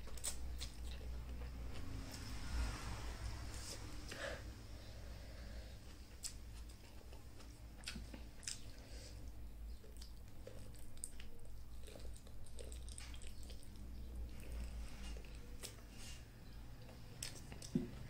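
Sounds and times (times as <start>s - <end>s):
person chewing: 0.0s - 2.2s, 6.1s - 15.9s, 16.8s - 18.0s
steady low hum: 0.0s - 18.0s.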